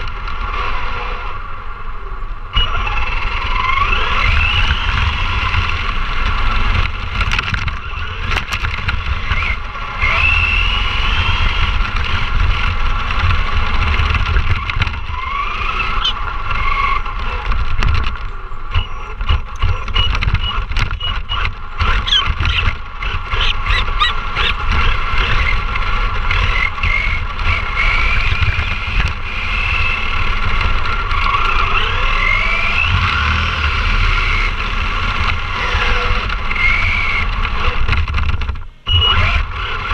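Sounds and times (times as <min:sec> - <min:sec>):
electric motor whining: 0:00.0 - 0:39.9
rattling clicks and knocks: 0:04.4 - 0:10.4, 0:11.2 - 0:33.3, 0:35.0 - 0:38.7.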